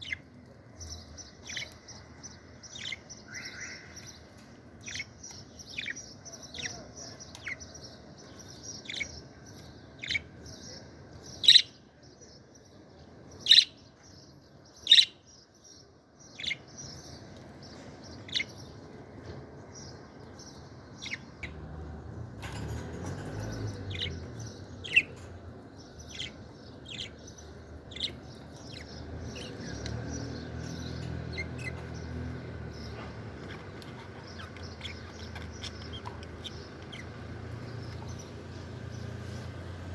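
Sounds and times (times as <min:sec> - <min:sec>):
sharp bird chirps: 0:02.7 - 0:04.3
budgerigars chattering and warbling: 0:02.7 - 0:10.8, 0:11.4 - 0:11.7, 0:22.4 - 0:39.6.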